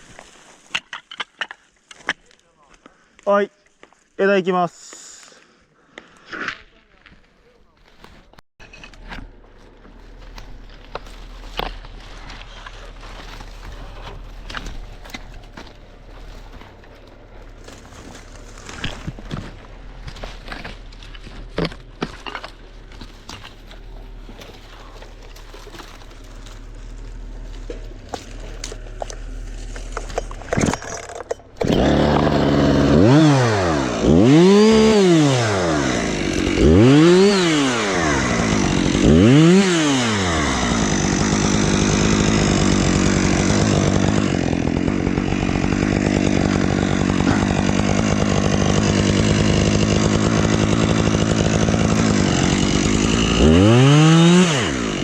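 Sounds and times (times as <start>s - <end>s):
chainsaw revving: 31.6s - 55.0s.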